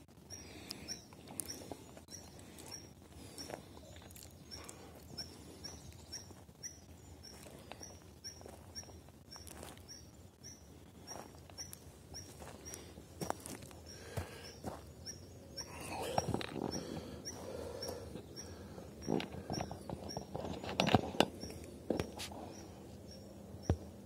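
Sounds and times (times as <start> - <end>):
footsteps scuffing on forest floor: 7.2 - 10.1, 11.0 - 14.9.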